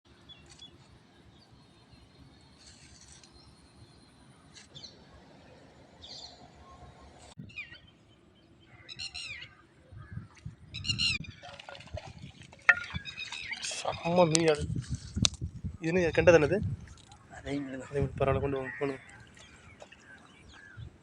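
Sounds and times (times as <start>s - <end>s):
faint outdoor background noise: 0.0s - 21.0s
small birds chirping: 12.8s - 14.5s, 16.8s - 21.0s.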